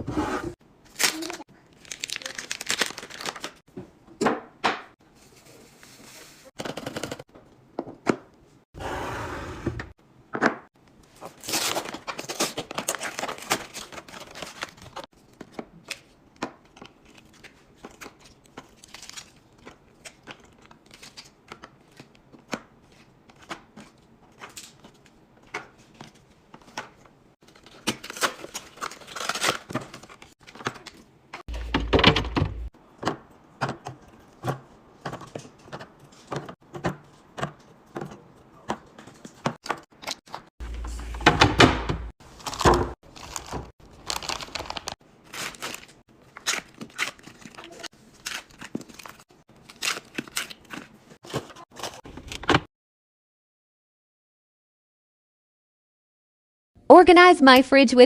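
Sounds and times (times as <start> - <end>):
packaging crinkling: 0.9 - 3.6, 42.2 - 51.0
packaging rustling: 1.0 - 3.6, 42.2 - 52.0.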